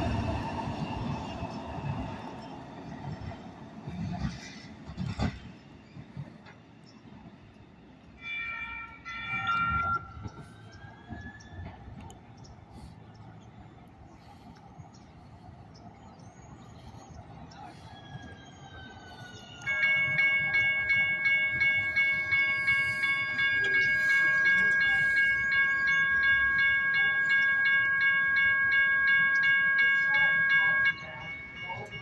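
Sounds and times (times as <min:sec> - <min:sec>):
train horn: 0:08.2 - 0:09.9.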